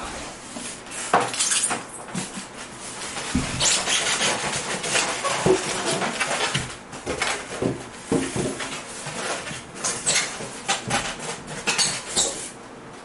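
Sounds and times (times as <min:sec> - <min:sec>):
foam and cardboard scraping: 0:02.4 - 0:12.6.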